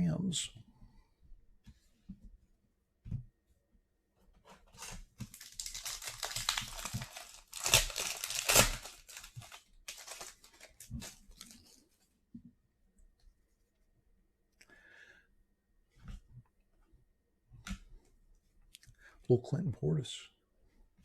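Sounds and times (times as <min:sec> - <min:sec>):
rustling and tearing: 0:04.4 - 0:12.0
foil wrapper tearing and crinkling: 0:04.8 - 0:11.8.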